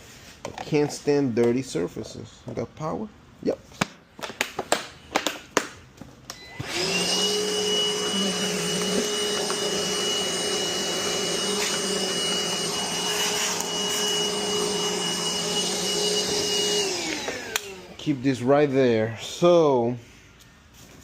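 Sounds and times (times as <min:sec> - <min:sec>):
vacuum cleaner running: 0:06.4 - 0:18.8.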